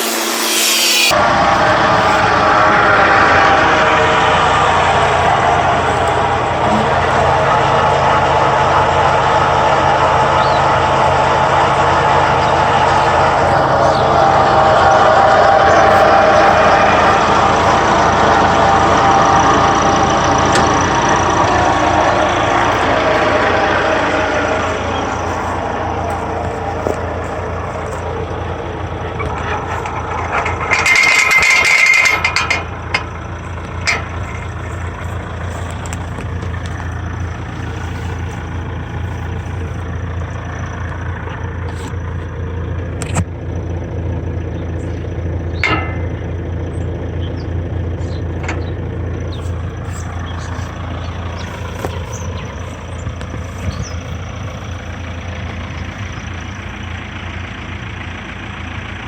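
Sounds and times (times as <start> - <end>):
loud hiss: 0.0 - 2.2
tractor diesel engine idling: 0.0 - 59.0.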